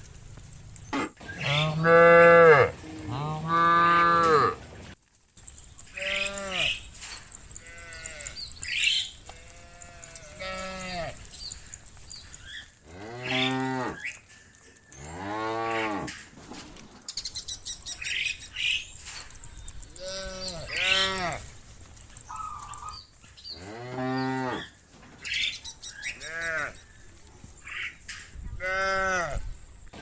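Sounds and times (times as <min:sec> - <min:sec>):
cattle mooing: 0:01.4 - 0:04.6, 0:06.0 - 0:06.8, 0:07.6 - 0:11.4, 0:12.9 - 0:14.1, 0:20.0 - 0:21.5, 0:23.6 - 0:24.7.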